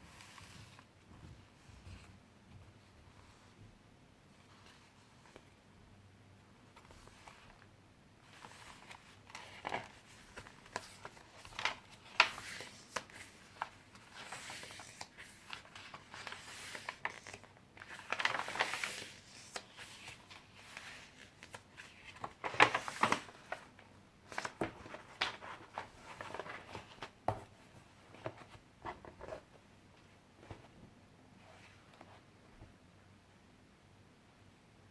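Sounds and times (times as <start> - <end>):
paper pages rustling: 8.3 - 32.2.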